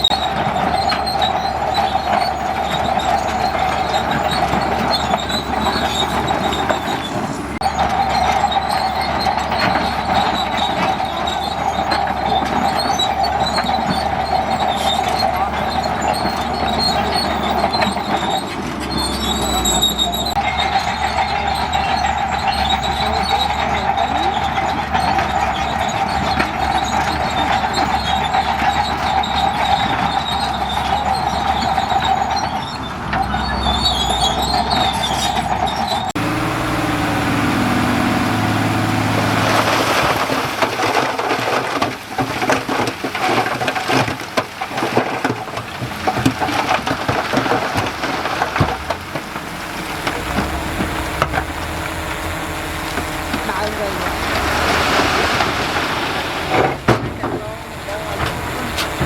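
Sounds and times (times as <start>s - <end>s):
heavy machinery engine: 0.0s - 59.0s
rapid clanks and knocks: 38.9s - 59.0s
high-pitched whine: 49.1s - 59.0s.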